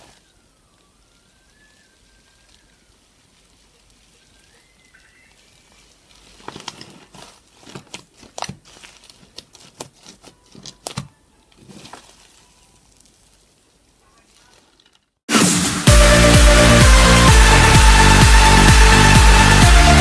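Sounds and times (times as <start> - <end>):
slime crackling and popping: 1.2 - 15.2.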